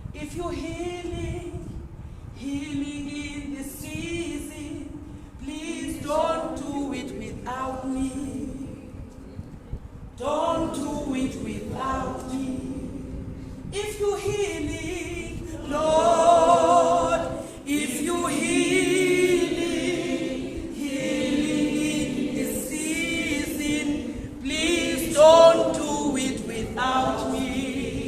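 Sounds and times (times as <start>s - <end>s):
congregation singing unaccompanied: 4.8s - 8.8s, 10.2s - 28.0s.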